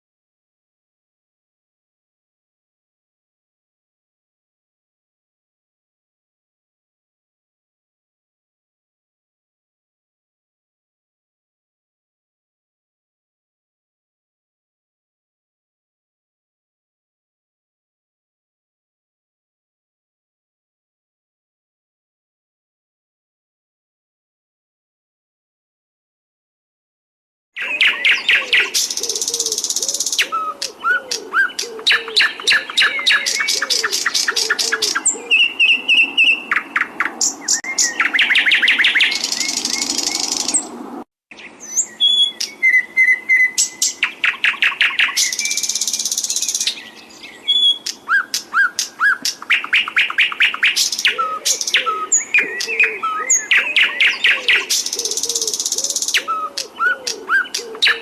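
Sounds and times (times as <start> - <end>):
songbird trilling: 27.6 - 40.7, 41.3 - 58.0
lower repeated bird call: 27.6 - 58.0.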